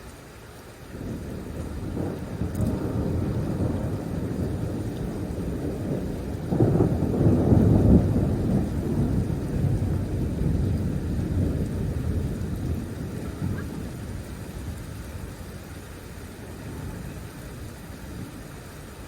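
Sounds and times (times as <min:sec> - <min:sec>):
rolling thunder: 0:00.9 - 0:18.7.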